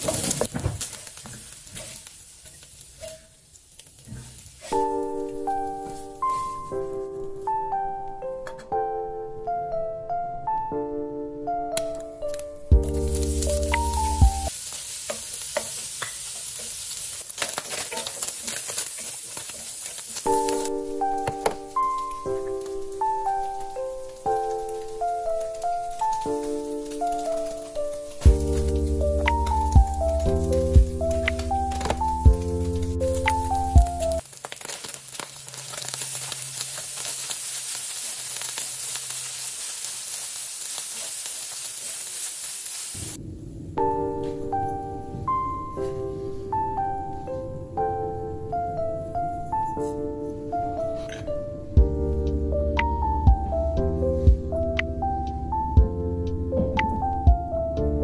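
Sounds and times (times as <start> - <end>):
meat sizzling in hot oil: 0.0 - 6.3, 12.8 - 43.2
wooden spatula scraping pan: 1.4 - 2.1
background music: 4.7 - 14.5, 20.3 - 34.2, 43.7 - 58.0.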